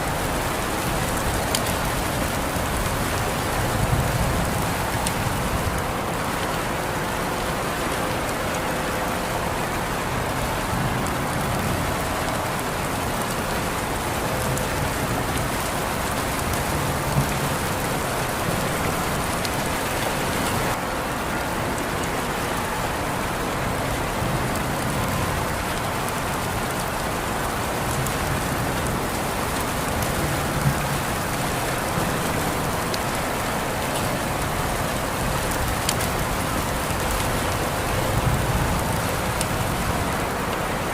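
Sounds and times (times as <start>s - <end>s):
rain pattering on surfaces: 0.0s - 40.9s.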